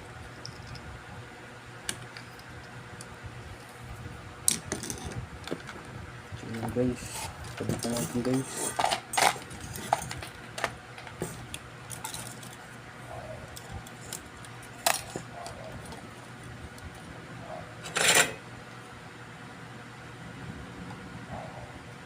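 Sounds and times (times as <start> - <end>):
steady low hum: 0.0 - 22.0
metal tools clinking: 7.1 - 10.3, 17.8 - 18.4
metal clatter: 17.8 - 18.4.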